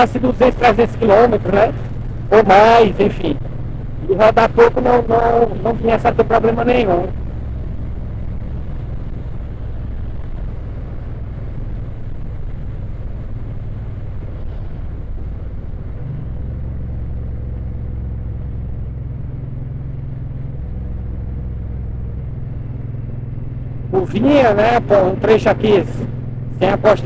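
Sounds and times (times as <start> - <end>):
motorcycle engine running: 0.0 - 27.0
wind and road noise: 0.0 - 27.0.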